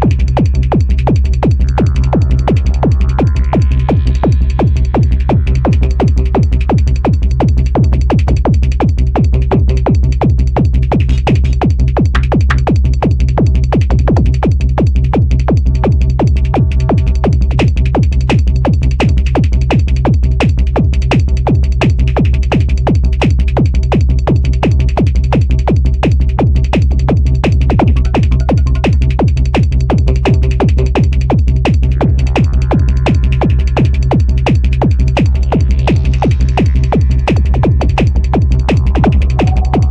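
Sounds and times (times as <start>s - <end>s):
drum machine beat: 0.0s - 39.9s
heavy bass: 0.0s - 39.9s
synth tones: 39.0s - 39.9s.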